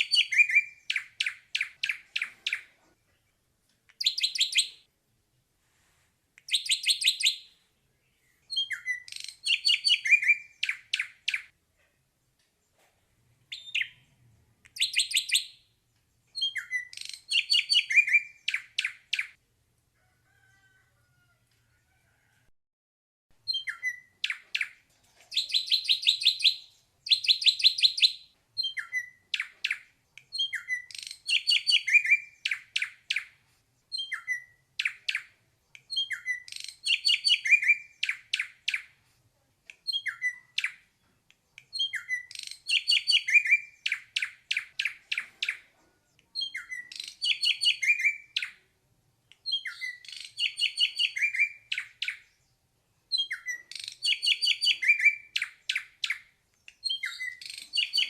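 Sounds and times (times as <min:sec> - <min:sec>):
bird singing whistled chattering notes: 0:00.0 - 0:02.7, 0:04.0 - 0:04.8, 0:08.5 - 0:11.5, 0:13.5 - 0:14.0, 0:16.4 - 0:19.3, 0:23.5 - 0:33.3, 0:33.9 - 0:38.9, 0:41.6 - 0:45.6, 0:46.4 - 0:48.6, 0:49.4 - 0:52.3, 0:53.1 - 0:58.0.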